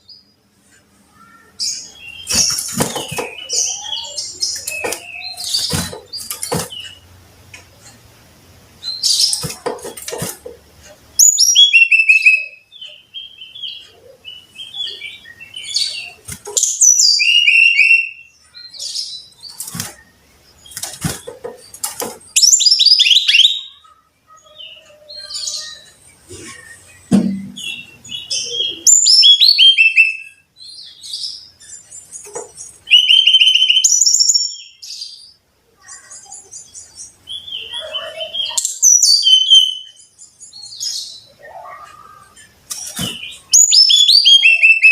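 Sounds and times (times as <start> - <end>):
bird singing whistled notes: 11.2 - 13.6, 16.6 - 18.4, 22.4 - 23.8, 26.7 - 30.5, 32.9 - 34.8, 37.3 - 41.3, 43.3 - 44.9.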